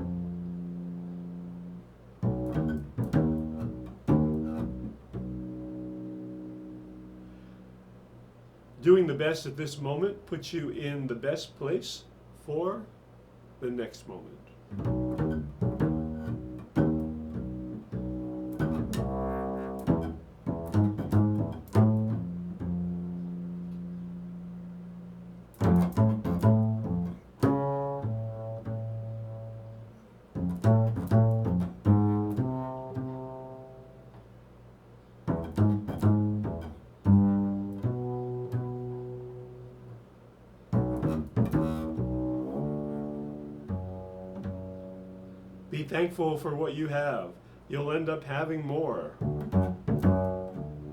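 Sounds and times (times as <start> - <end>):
plucked low string instrument: 0.0 - 7.5, 14.7 - 34.2, 35.3 - 40.0, 40.8 - 45.8, 49.2 - 50.9.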